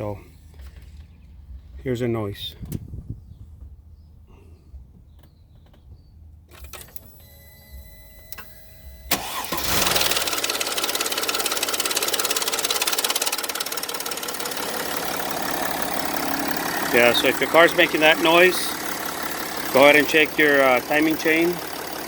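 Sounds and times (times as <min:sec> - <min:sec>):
starter motor engaging: 0:06.5 - 0:22.0
diesel engine rattling: 0:09.0 - 0:22.0.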